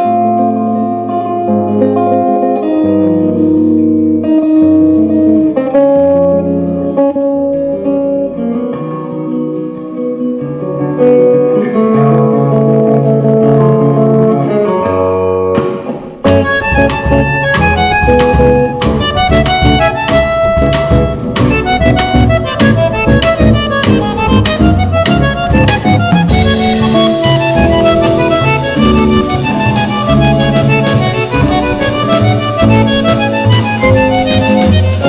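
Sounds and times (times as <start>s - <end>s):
plucked guitar: 0.0s - 35.0s
tango band playing: 0.0s - 35.0s
cymbals: 25.1s - 35.0s.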